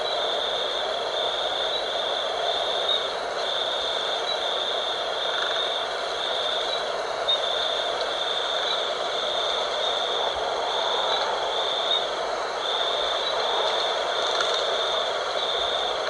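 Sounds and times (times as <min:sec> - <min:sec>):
insects trilling: 0:00.0 - 0:16.0
wind rushing: 0:09.0 - 0:15.8.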